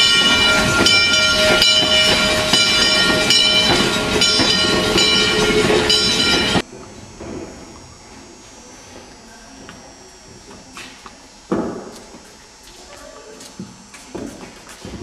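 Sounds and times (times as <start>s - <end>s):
steady high tones: 0.0s - 6.6s
train wheels clattering: 0.0s - 6.6s.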